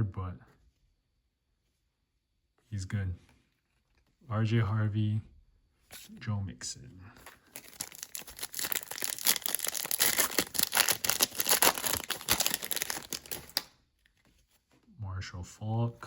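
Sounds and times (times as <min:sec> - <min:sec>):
foil wrapper tearing and crinkling: 0:07.4 - 0:13.7.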